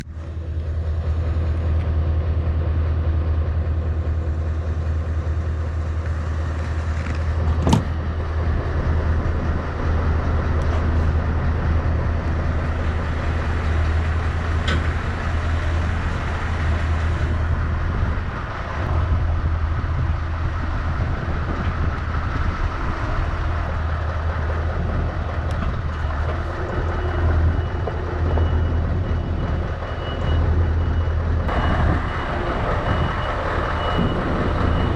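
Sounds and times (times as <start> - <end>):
diesel truck engine droning: 0.0 - 34.9
reversing alarm beeping: 26.5 - 34.9.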